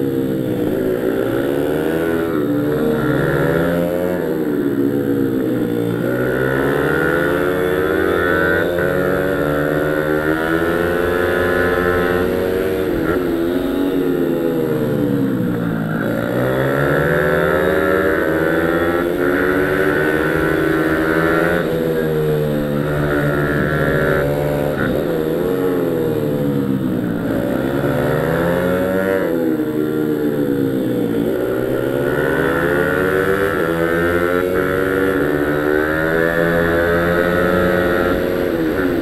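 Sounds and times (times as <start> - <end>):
small motorbike engine revving: 0.0 - 39.0.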